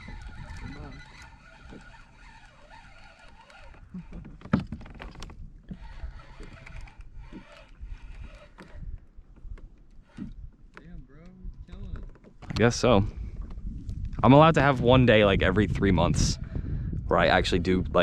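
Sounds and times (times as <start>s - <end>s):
handling noises in a plastic kayak: 0.0s - 14.2s
rumble of wind and water: 0.0s - 18.0s.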